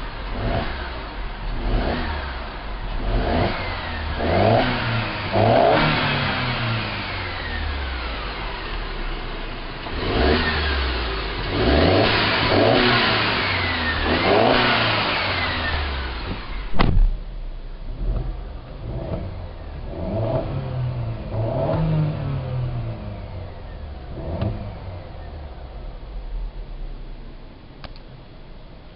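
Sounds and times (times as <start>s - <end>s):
car engine revving: 0.0s - 27.9s
sharp knock: 16.7s - 17.2s.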